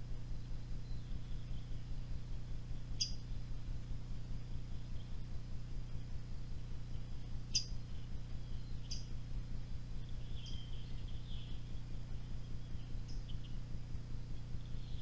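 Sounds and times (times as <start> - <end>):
steady low hum: 0.0 - 15.0
bird chirping: 0.4 - 3.4, 6.8 - 9.3, 10.0 - 15.0
bird twittering: 2.9 - 3.4, 6.9 - 9.2, 10.0 - 13.7, 14.4 - 15.0.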